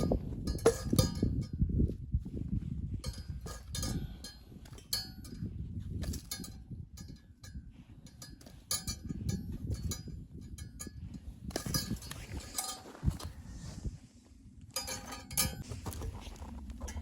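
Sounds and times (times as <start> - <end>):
metallic clink: 0.0 - 1.6, 3.0 - 13.3, 14.8 - 15.6.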